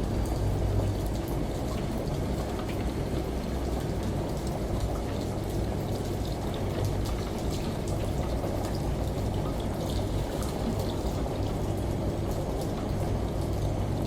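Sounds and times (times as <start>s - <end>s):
low machine hum: 0.0s - 4.4s
rain: 0.0s - 14.0s
washing machine: 0.0s - 14.0s.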